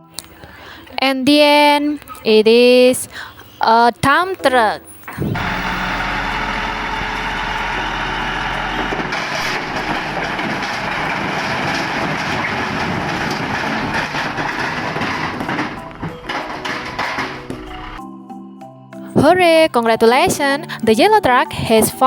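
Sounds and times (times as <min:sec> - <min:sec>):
toy truck rolling on floor: 0:05.1 - 0:18.0.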